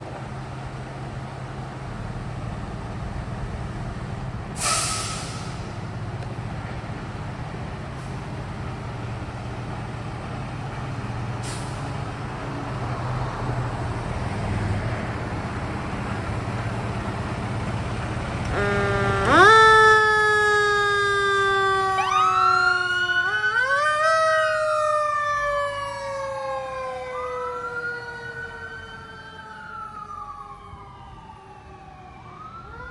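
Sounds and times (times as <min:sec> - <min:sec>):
fire engine motor rumbling: 0:00.0 - 0:32.9
short hiss: 0:04.6 - 0:05.6
siren wailing: 0:18.5 - 0:32.9.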